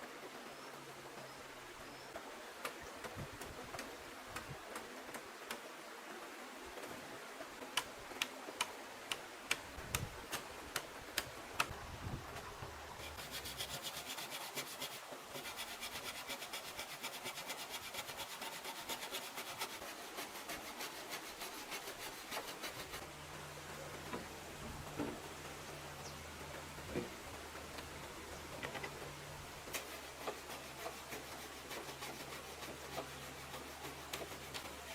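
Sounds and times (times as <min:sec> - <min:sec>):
rasping scraping strokes on wood: 0:13.0 - 0:23.0, 0:29.7 - 0:34.9.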